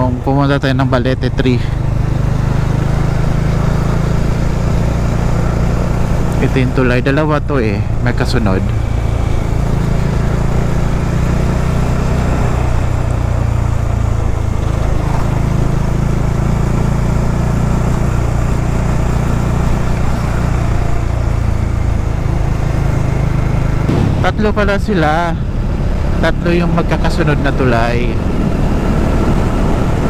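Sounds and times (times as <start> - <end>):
motorcycle engine drone: 0.0 - 30.0
road and wind noise: 0.0 - 30.0.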